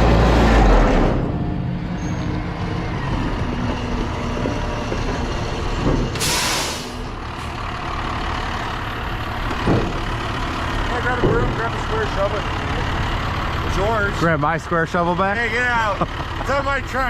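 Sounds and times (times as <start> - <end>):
heavy diesel engine running: 0.0 - 17.0
truck air brakes hissing: 6.1 - 7.7.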